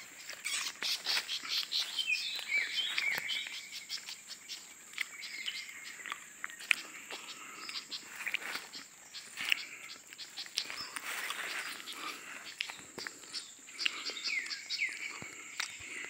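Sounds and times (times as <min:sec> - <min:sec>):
high insect drone: 0:00.0 - 0:16.0
small birds chirping: 0:00.0 - 0:16.0.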